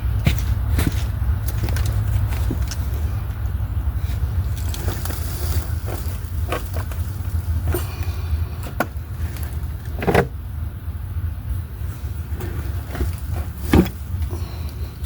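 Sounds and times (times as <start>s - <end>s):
steady low rumble: 0.0s - 15.0s
sharp knocks and clunks: 8.6s - 9.0s, 9.9s - 10.4s, 12.4s - 14.3s.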